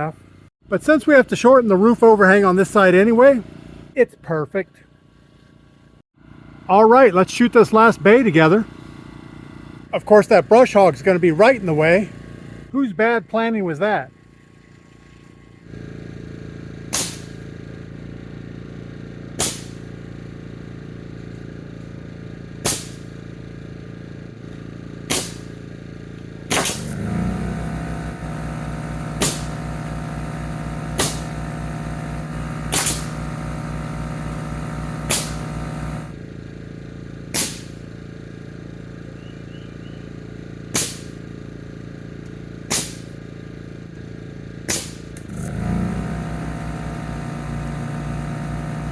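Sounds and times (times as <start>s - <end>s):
loud motor running: 0.0s - 48.9s
nail gun firing into wood: 16.9s - 17.5s, 19.4s - 19.9s, 22.6s - 23.2s, 25.0s - 25.6s, 26.5s - 27.2s, 29.2s - 29.7s, 30.9s - 31.5s, 32.6s - 33.3s, 35.0s - 35.7s, 37.3s - 37.9s, 40.7s - 41.2s, 42.6s - 43.2s, 44.6s - 45.5s
motor humming: 24.4s - 48.9s.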